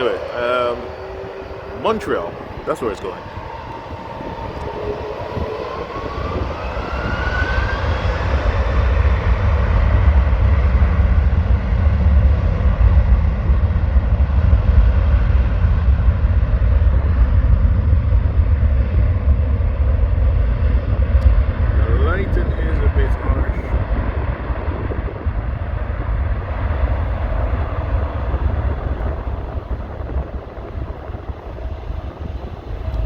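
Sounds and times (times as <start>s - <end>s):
jet airliner taking off: 0.0s - 33.0s.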